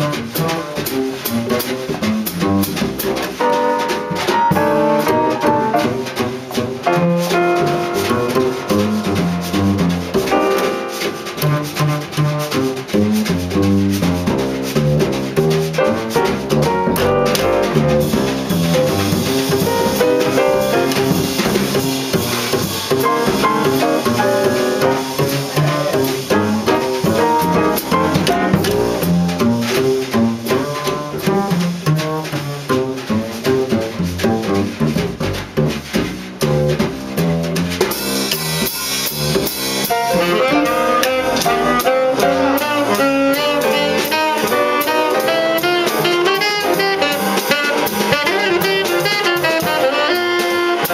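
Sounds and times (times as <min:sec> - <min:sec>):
busy drumming and cymbals: 0:00.0 - 0:50.9
jazz combo playing: 0:00.0 - 0:50.9
saxophone horn line: 0:39.9 - 0:50.9.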